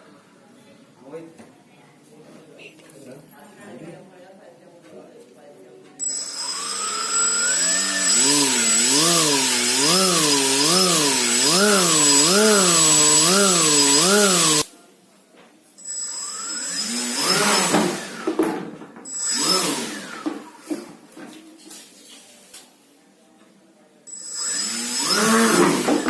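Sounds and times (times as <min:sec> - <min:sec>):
small electric motor humming: 0:06.0 - 0:14.7, 0:15.9 - 0:18.3, 0:19.1 - 0:20.2, 0:24.1 - 0:26.0.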